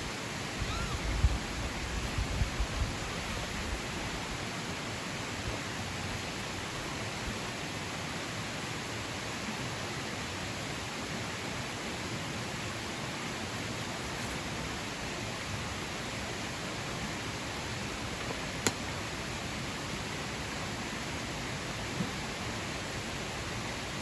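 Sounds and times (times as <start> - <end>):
flowing water rushing: 0.0 - 24.0.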